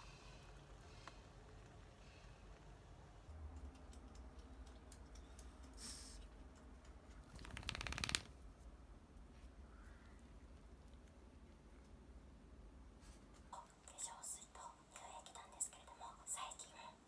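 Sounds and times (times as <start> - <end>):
brief rustle: 7.3 - 8.4
rattling clicks: 7.4 - 8.3.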